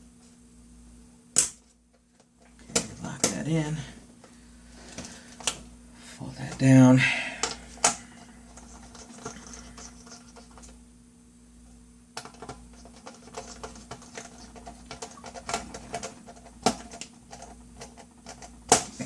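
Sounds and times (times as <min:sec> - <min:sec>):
laptop parts clicking and tapping: 0:12.2 - 0:19.0.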